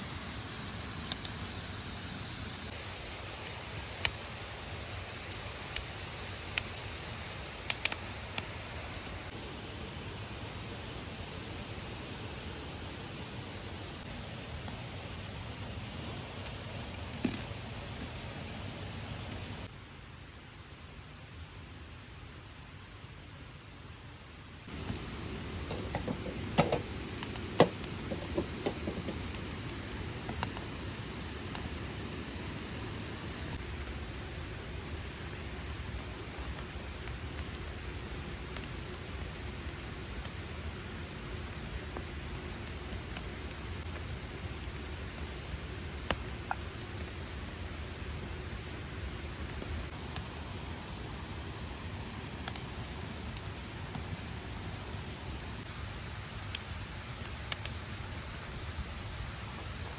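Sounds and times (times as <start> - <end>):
steady hiss: 0.0 - 59.9
sharp clicks and crackles: 2.7 - 9.2, 24.7 - 55.7, 56.5 - 57.9.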